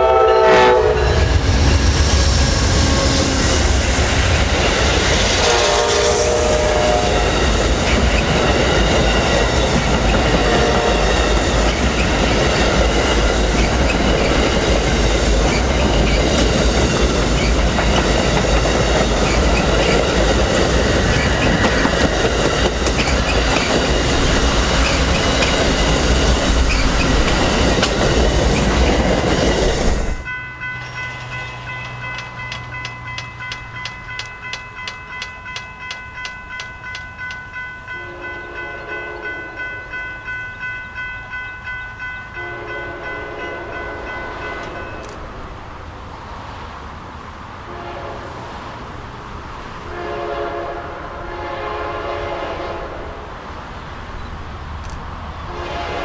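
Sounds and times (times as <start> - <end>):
grade-crossing warning bell ringing: 0.0 - 45.8
train wheels rumbling on rail: 0.0 - 56.0.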